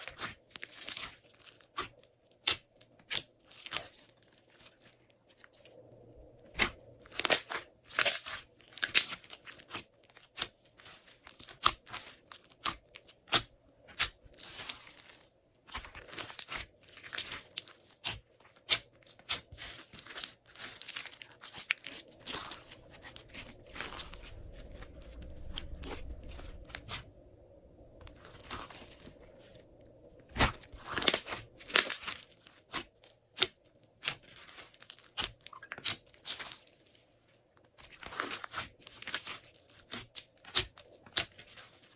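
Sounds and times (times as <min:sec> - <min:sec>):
slime being kneaded: 0:06.5 - 0:27.1, 0:28.0 - 0:36.7, 0:37.8 - 0:41.9
slime popping and crackling: 0:30.3 - 0:36.6.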